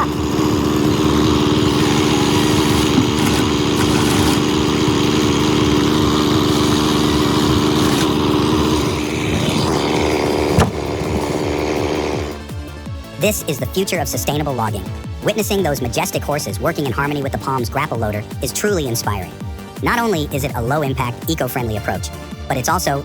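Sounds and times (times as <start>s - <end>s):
small engine humming: 0.0s - 13.1s.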